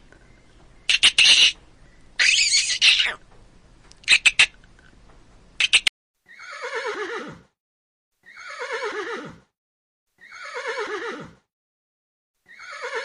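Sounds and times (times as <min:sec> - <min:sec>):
horse whinnying: 0:02.2 - 0:03.2, 0:06.3 - 0:07.5, 0:08.2 - 0:09.5, 0:10.2 - 0:11.4, 0:12.5 - 0:13.0
quick high chirps: 0:05.6 - 0:05.9.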